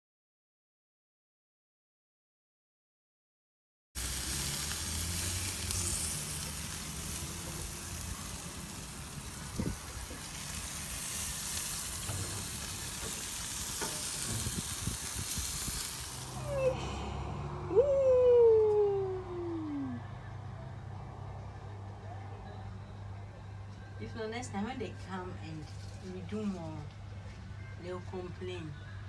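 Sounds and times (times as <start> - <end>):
food sizzling: 4.0 - 16.8
low hum: 16.2 - 24.0.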